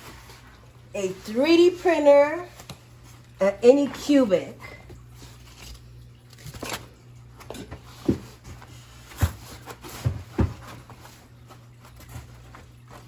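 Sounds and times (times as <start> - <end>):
dull knocks and thumps: 7.5 - 11.1.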